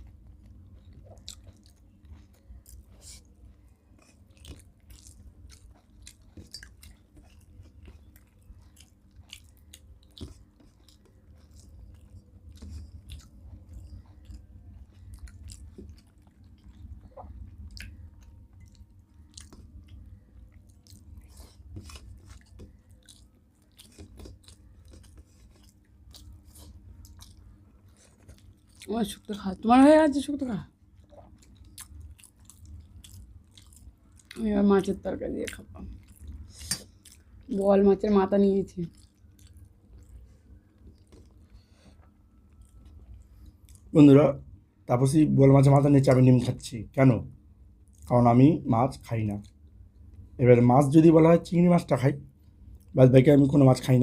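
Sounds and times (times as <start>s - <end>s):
mouth chewing and smacking: 0.0s - 29.4s, 30.7s - 37.6s, 38.8s - 44.0s, 47.8s - 48.1s
steady low hum: 0.0s - 54.0s.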